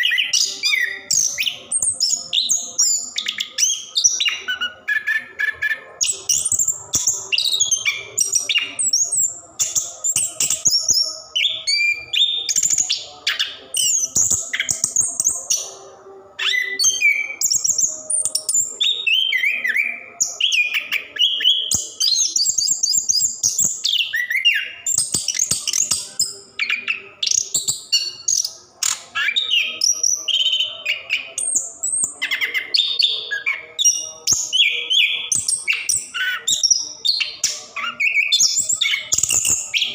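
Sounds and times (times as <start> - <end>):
thrush singing: 0.0 - 39.9.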